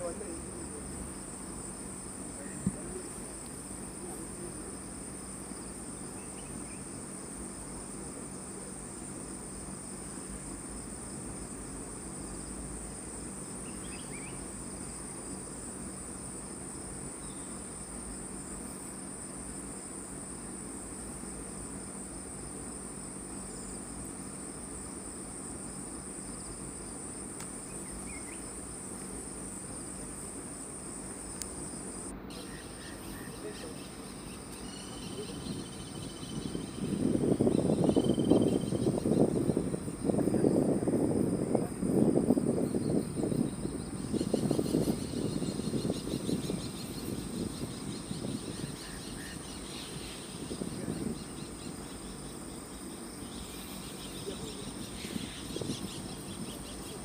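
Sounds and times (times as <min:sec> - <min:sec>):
forest insects droning: 0:00.0 - 0:57.0
faint chirps: 0:32.1 - 0:39.1.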